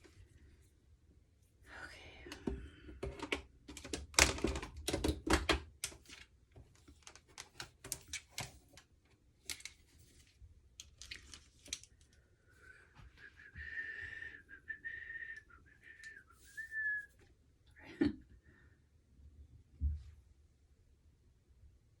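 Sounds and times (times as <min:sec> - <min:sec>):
small objects clicking and rustling: 0:03.1 - 0:12.2
steady whistling tone: 0:13.1 - 0:17.2.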